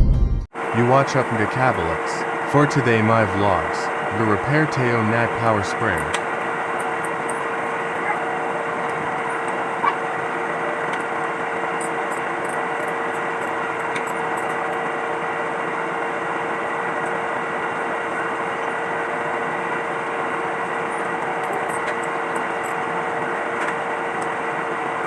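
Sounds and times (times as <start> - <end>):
machine humming with whine: 0.0 - 25.0.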